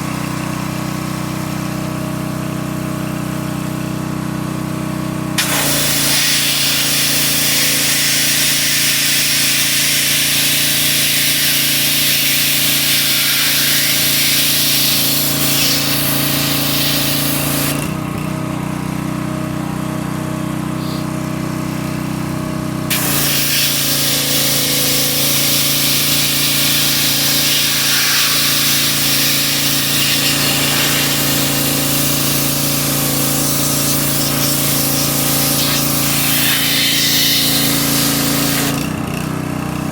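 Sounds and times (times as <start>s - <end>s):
small engine running: 0.0s - 39.9s
high-pressure spray hissing: 5.4s - 17.8s, 22.9s - 38.8s.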